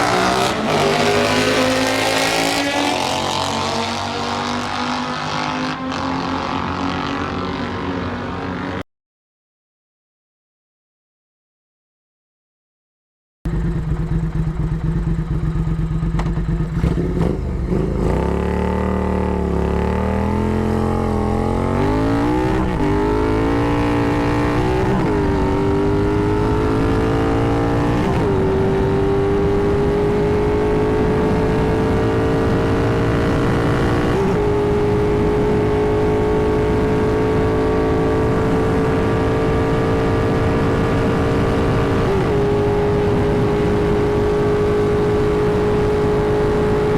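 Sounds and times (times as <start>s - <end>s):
motorcycle engine revving: 0.0s - 8.8s, 13.5s - 46.9s.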